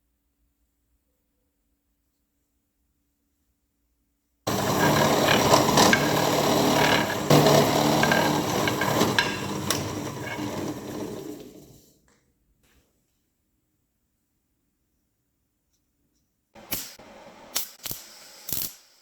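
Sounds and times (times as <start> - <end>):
tool scraping rasp: 4.5 - 11.8.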